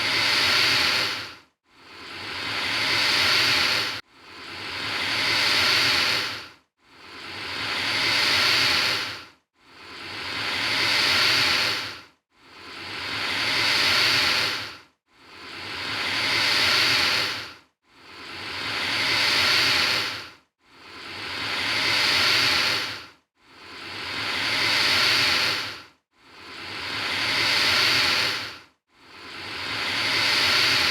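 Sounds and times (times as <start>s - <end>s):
alligator hissing: 0.0s - 1.3s, 2.0s - 4.0s, 4.6s - 6.4s, 7.1s - 9.2s, 9.9s - 11.9s, 12.7s - 14.7s, 15.4s - 17.4s, 18.1s - 20.2s, 20.9s - 23.0s, 23.7s - 25.8s, 26.4s - 28.5s, 29.3s - 30.9s.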